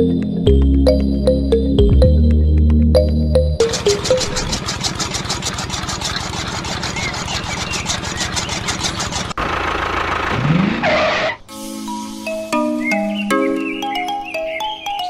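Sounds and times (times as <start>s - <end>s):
small engine puttering: 3.6s - 11.5s.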